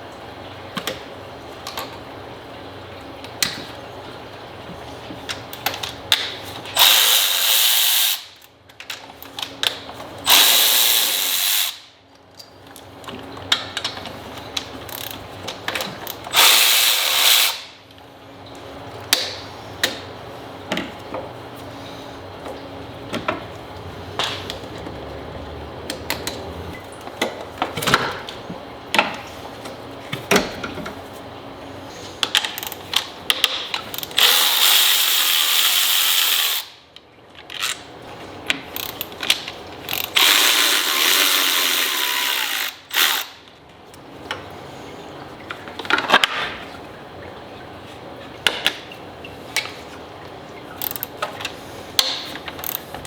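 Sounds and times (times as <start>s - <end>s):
ratchet clicking: 6.8s - 8.5s, 10.3s - 11.9s, 33.9s - 36.7s, 39.9s - 43.4s, 50.8s - 51.1s, 52.6s - 52.8s.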